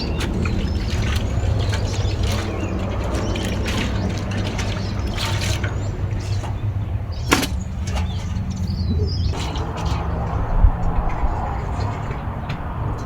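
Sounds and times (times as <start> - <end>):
utensils clinking: 0.0 - 10.4
water splashing and pouring: 0.0 - 10.7.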